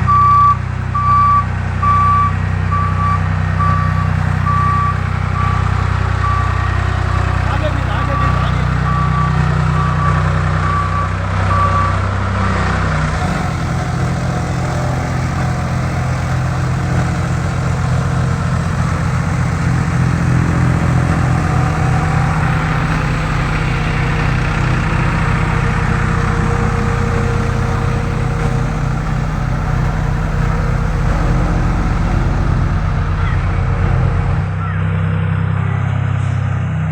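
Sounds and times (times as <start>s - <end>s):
reversing alarm beeping: 0.0s - 12.0s
road roller engine running: 0.0s - 36.9s.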